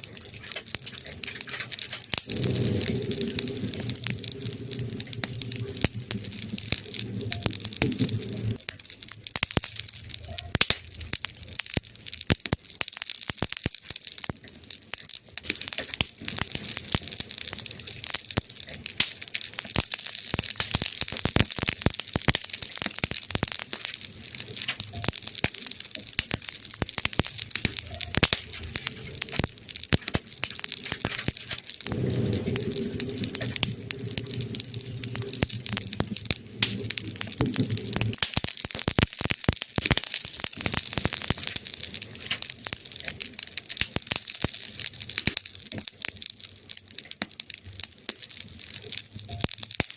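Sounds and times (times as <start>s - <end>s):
wood fire crackling: 0.0s - 49.9s
low rumble: 2.0s - 8.7s, 26.8s - 38.2s.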